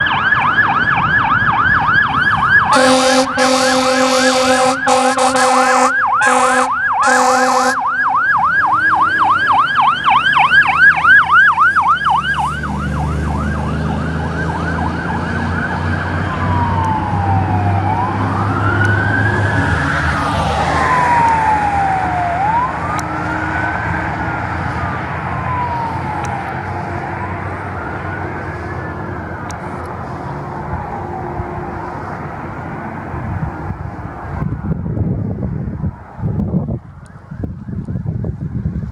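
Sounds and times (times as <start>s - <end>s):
fire engine siren: 0.0s - 38.9s
truck engine rumble: 0.0s - 38.9s
air horn blasts: 2.7s - 7.9s.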